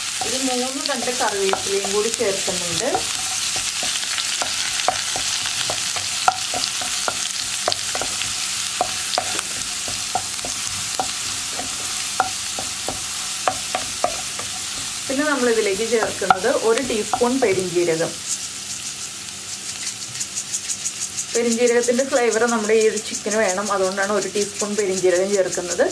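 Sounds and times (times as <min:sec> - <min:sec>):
wooden spatula stirring: 0:00.0 - 0:17.8
aromatics sizzling in hot oil: 0:00.0 - 0:25.9.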